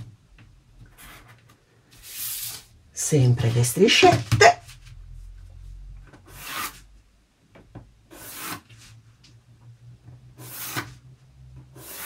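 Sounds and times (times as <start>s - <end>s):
pencil scratching along ruler: 6.3s - 6.8s, 8.1s - 8.7s, 10.4s - 11.0s, 11.7s - 12.0s.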